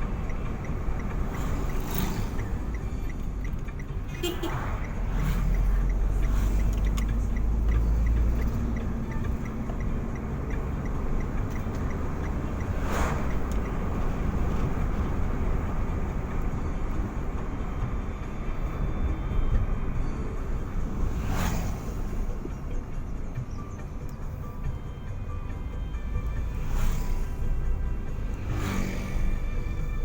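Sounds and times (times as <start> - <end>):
vehicle road and engine rumble: 0.0 - 30.0
light ticking: 4.8 - 14.9.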